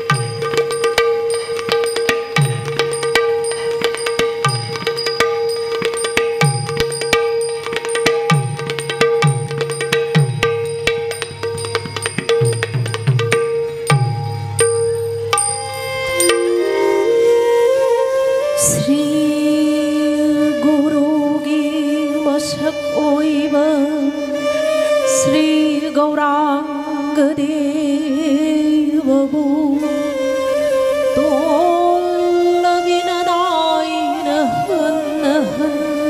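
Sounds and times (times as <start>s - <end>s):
ornamented melody of voice and instruments: 0.0s - 36.0s
bright high strikes: 9.5s - 17.4s.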